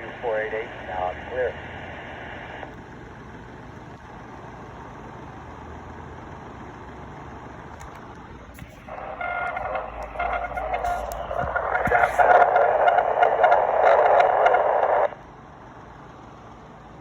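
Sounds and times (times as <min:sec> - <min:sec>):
radio static hiss: 0:00.0 - 0:02.8, 0:08.5 - 0:15.2.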